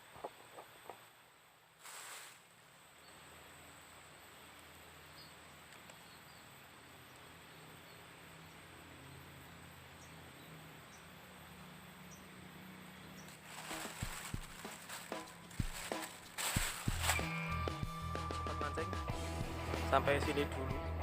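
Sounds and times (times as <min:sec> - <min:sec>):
soft hiss: 0:00.0 - 0:17.5
high-pitched insect drone: 0:13.6 - 0:18.2
music: 0:13.7 - 0:21.0.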